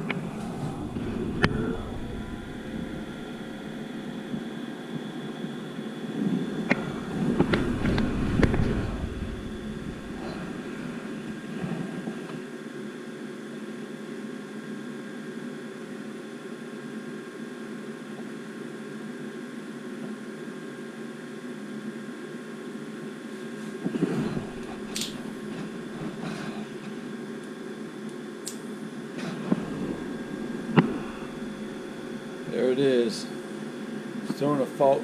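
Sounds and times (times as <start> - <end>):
draft inducer motor humming: 0.0 - 11.4, 23.7 - 35.0.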